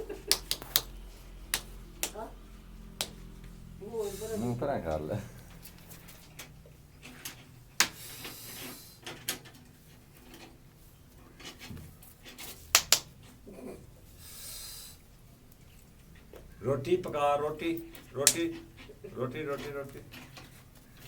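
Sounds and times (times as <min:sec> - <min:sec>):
monkey clapping: 0:00.1 - 0:02.3, 0:02.9 - 0:03.4, 0:12.7 - 0:13.2, 0:18.2 - 0:18.5.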